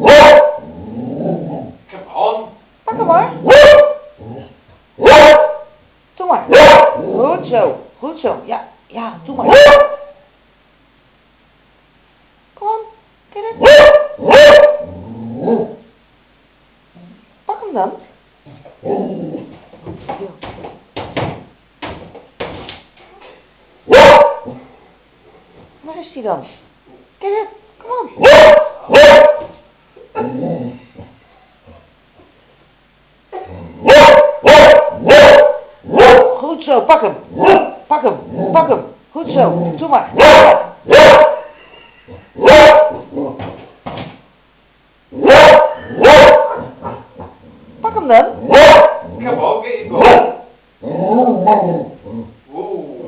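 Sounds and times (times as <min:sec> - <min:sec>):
dog barking: 0:00.0 - 0:00.7, 0:03.3 - 0:04.2, 0:05.0 - 0:05.8, 0:06.5 - 0:07.1, 0:09.4 - 0:10.2, 0:13.6 - 0:14.9, 0:23.9 - 0:24.6, 0:28.2 - 0:29.6, 0:33.8 - 0:36.4, 0:37.4 - 0:37.8, 0:40.1 - 0:41.6, 0:42.4 - 0:43.1, 0:45.2 - 0:47.1, 0:48.1 - 0:49.2, 0:49.9 - 0:50.5.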